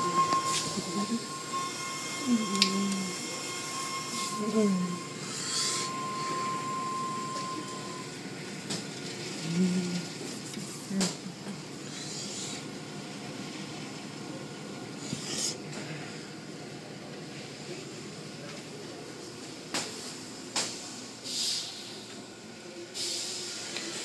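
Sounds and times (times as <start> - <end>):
steady high tone: 0.0 - 8.2
car wash machinery rumbling: 0.0 - 15.0.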